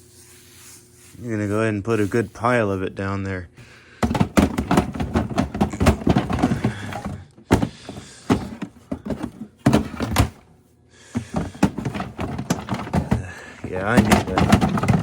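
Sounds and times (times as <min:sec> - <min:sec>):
knocks and thunks: 0:04.0 - 0:10.4, 0:11.2 - 0:15.0
shredded paper rustling: 0:11.3 - 0:15.0.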